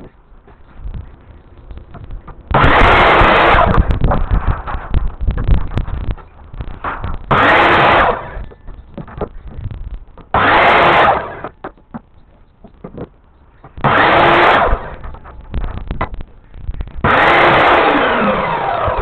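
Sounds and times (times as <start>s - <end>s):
knocks and clicks: 8.4s - 10.4s, 11.4s - 14.0s.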